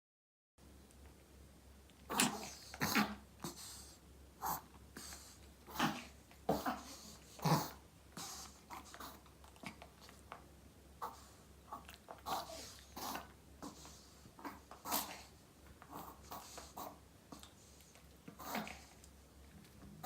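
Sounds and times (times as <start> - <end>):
dog breathing noisily: 2.4 - 9.3.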